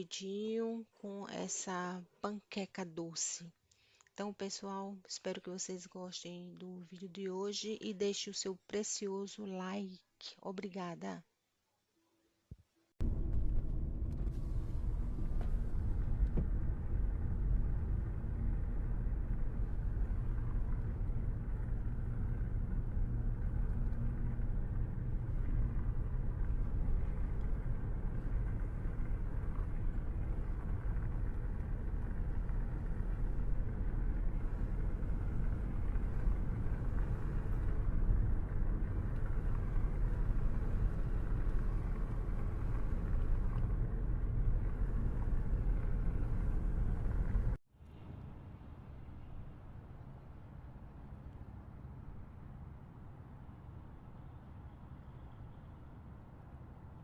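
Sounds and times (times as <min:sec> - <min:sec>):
car engine and tyre rumble: 0:13.0 - 0:47.6.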